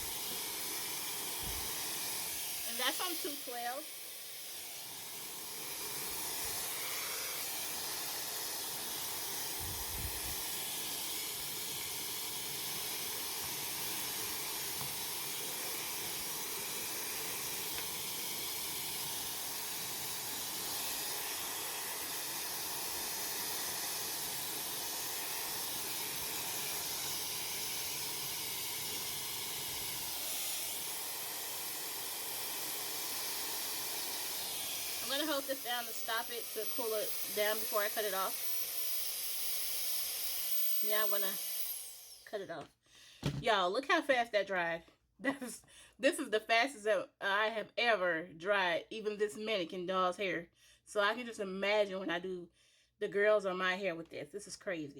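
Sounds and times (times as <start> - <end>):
hair dryer blowing: 0.0 - 42.6.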